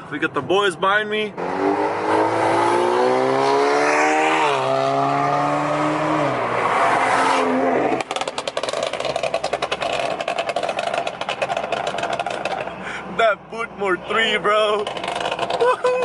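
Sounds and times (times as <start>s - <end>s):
car engine accelerating: 1.4s - 12.8s, 14.7s - 16.0s.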